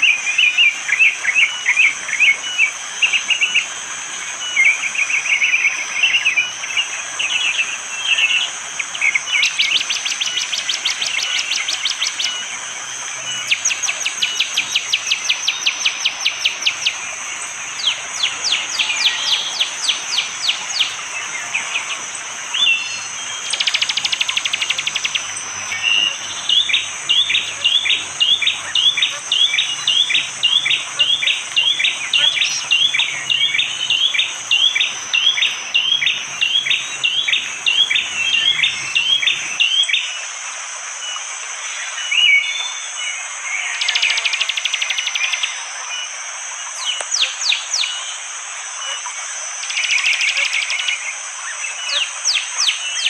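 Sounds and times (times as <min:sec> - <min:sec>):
bird calling in rapid series: 0:00.0 - 0:40.1
high insect drone: 0:00.0 - 0:53.0.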